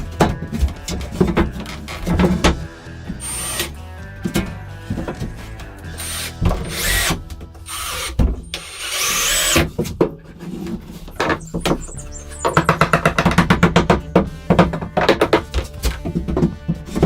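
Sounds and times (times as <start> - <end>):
electric power tool whining: 2.6 - 3.9, 5.9 - 9.7
knocks: 11.2 - 16.6.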